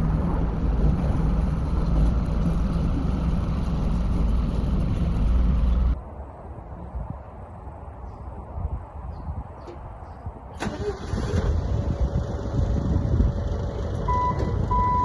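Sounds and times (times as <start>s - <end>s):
heavy engine rumbling: 0.0s - 6.0s, 10.6s - 15.0s.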